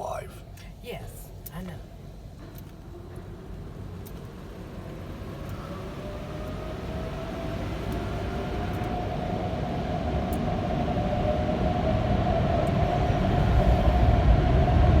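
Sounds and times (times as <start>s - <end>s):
car wash machinery rumbling: 1.3s - 15.0s
motor whine: 3.4s - 14.8s.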